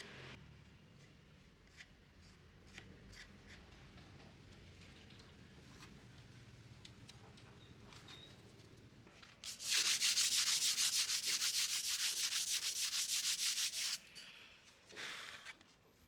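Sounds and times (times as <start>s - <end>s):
hand sanding wood: 9.5s - 14.0s.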